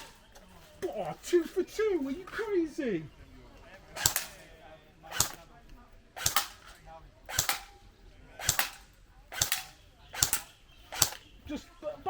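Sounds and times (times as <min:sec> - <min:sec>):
bb gun shots cracking: 0:00.0 - 0:00.2, 0:03.9 - 0:05.5, 0:06.2 - 0:11.4.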